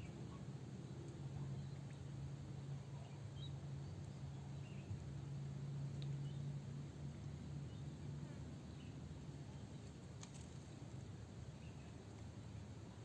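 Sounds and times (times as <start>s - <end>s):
steady low hum: 0.0s - 13.0s
small birds chirping: 2.8s - 5.0s, 5.9s - 6.6s, 11.4s - 12.6s.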